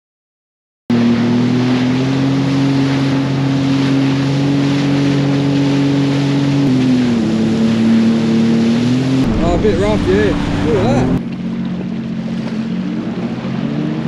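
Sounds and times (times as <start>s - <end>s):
jet ski engine running: 0.9s - 14.0s
water rushing: 0.9s - 14.0s
wind rushing: 9.0s - 11.2s.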